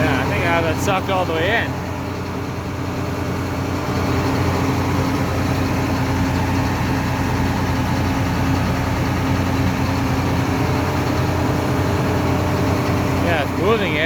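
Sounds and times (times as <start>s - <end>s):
combine diesel engine running: 0.0s - 14.0s.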